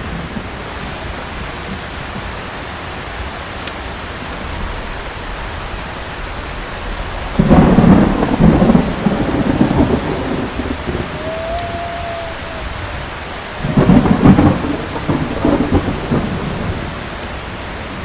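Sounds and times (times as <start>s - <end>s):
thunderclap rumbling: 0.0s - 2.3s, 4.3s - 18.0s
heavy rain: 0.0s - 18.0s.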